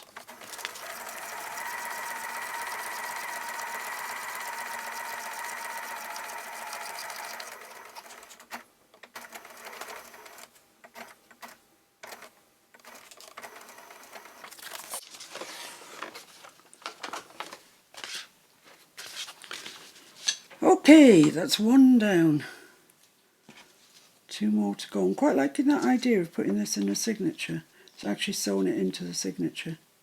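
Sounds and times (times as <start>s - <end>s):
sewing machine running: 0.0s - 15.0s
paper rustling: 14.5s - 20.5s.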